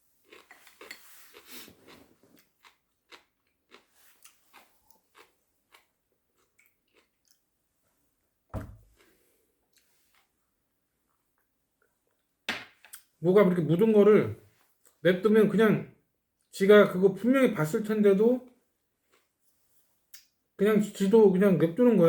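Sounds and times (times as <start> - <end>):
close-up chewing: 0.2 - 7.5.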